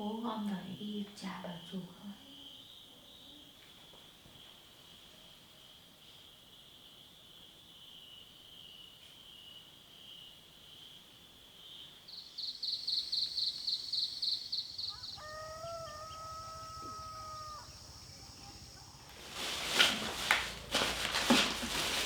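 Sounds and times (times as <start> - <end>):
pulsing insect trill: 11.6 - 20.6
rooster crowing: 14.8 - 19.2
loud rustling and clattering: 19.0 - 22.0.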